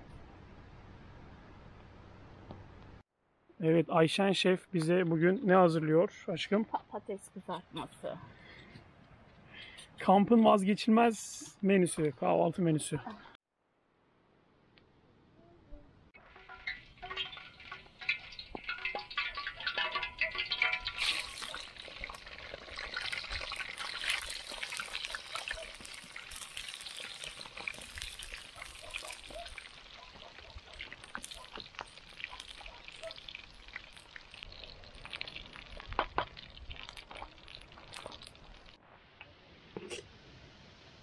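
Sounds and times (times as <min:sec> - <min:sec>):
potatoes sizzling in oil: 0:16.2 - 0:38.8
oil popping and crackling: 0:16.2 - 0:39.9.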